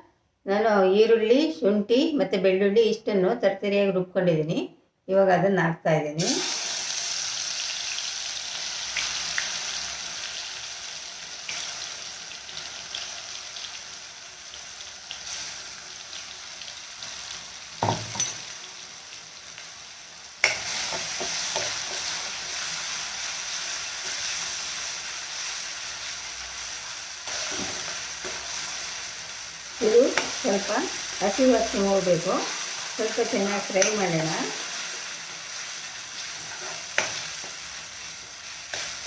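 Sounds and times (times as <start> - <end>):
paste sizzling in hot oil: 6.2 - 39.0
spoon scraping a pan: 20.4 - 22.7, 36.2 - 37.6.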